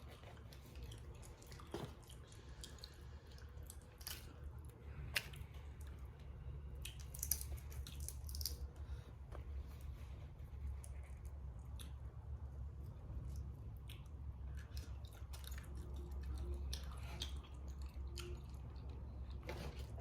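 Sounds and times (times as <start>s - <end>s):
low steady hum: 0.0s - 20.0s
wet squishing and chewing: 0.0s - 20.0s
crawfish shells cracking: 6.8s - 8.7s.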